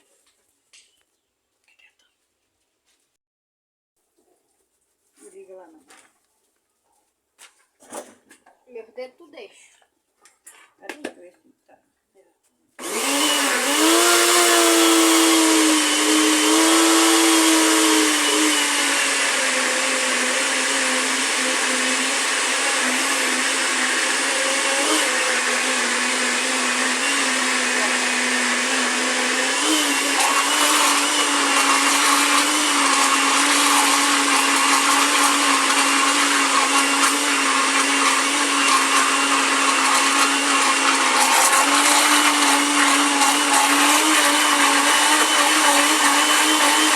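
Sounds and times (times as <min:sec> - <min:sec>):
electric blender running: 0:12.8 - 0:46.9.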